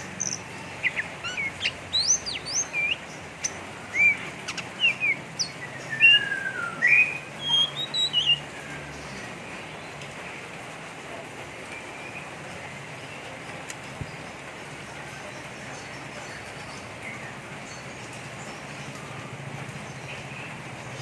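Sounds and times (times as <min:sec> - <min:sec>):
bird singing chattering song: 0:00.0 - 0:09.4.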